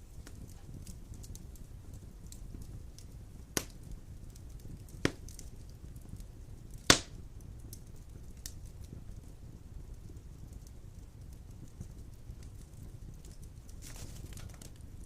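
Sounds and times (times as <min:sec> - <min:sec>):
low rumble of fire: 0:00.0 - 0:15.0
sharp pops from logs: 0:03.6 - 0:03.8, 0:05.0 - 0:05.3, 0:06.8 - 0:07.2.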